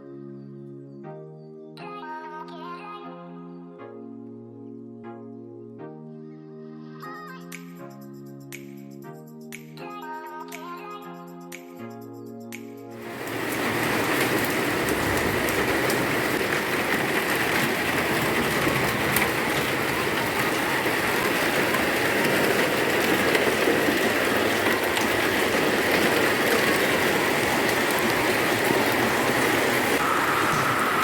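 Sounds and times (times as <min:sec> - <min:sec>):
heavy rain falling: 0:13.0 - 0:31.0.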